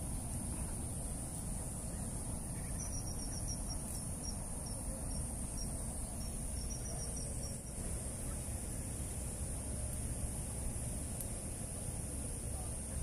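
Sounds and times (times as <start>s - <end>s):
insects droning: 0.0s - 13.0s
low background rush: 0.0s - 13.0s
quick high insect chirps: 0.5s - 9.1s.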